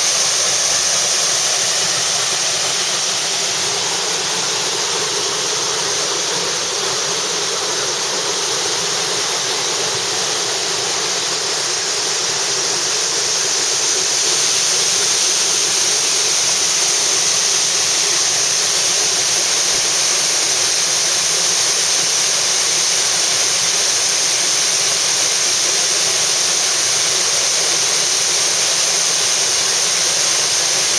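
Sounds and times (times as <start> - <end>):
waterfall pouring: 0.0 - 30.9.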